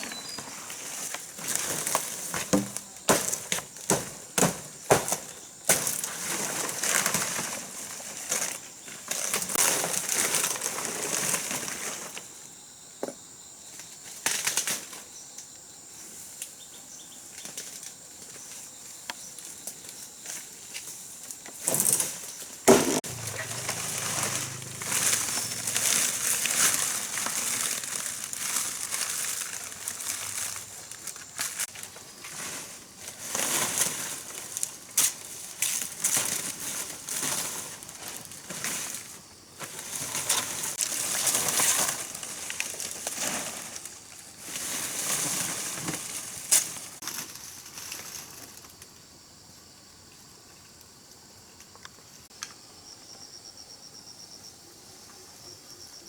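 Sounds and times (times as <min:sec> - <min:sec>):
dry material rustling and crinkling: 0:23.0 - 0:48.6.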